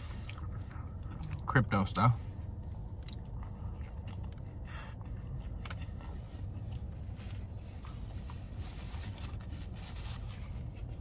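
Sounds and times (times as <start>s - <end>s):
person chewing: 0.0s - 1.4s, 2.8s - 6.8s
low hum inside a car: 0.0s - 11.0s.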